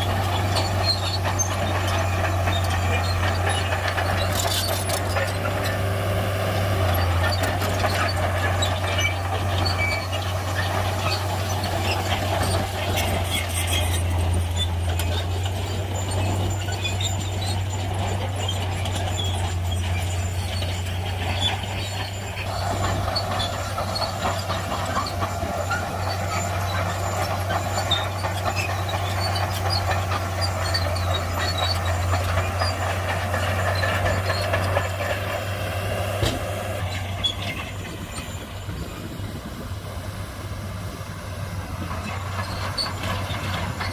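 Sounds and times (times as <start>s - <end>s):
bulldozer diesel engine droning: 0.0s - 43.9s
high squeaks and clinks: 6.8s - 38.6s.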